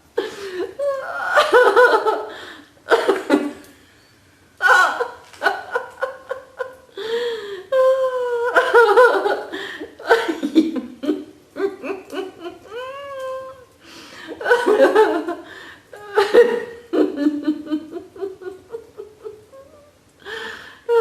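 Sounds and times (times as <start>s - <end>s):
person laughing loudly: 14.3s - 19.6s.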